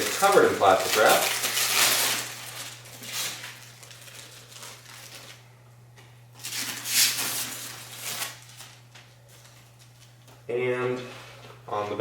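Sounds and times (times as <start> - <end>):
plastic wrap crinkling: 0.0 - 5.6, 6.3 - 10.3
low electrical hum: 0.0 - 12.0.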